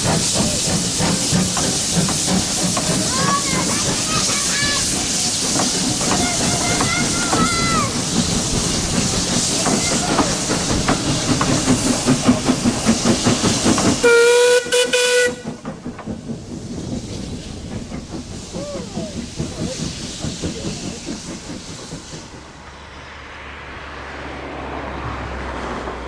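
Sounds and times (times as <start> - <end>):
steam locomotive exhaust beats: 0.0 - 26.0
steam locomotive whistle: 14.0 - 15.6.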